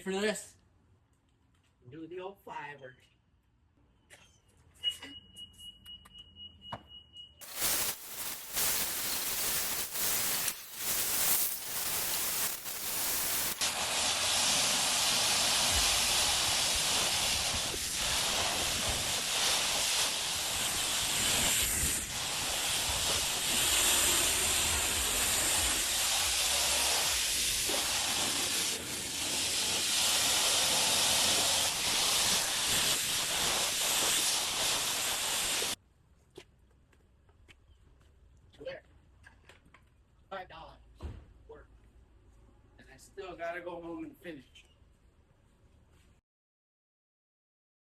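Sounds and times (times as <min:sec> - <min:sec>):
pressure wand spraying water: 0:07.4 - 0:35.8.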